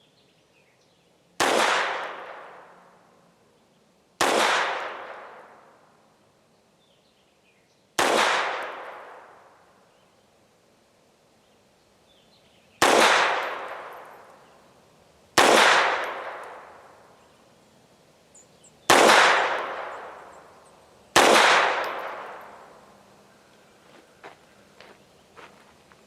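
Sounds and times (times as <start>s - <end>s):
pistol shots echoing: 1.4s - 2.7s, 4.2s - 5.7s, 8.0s - 9.5s, 12.8s - 14.5s, 15.4s - 17.1s, 18.9s - 23.1s.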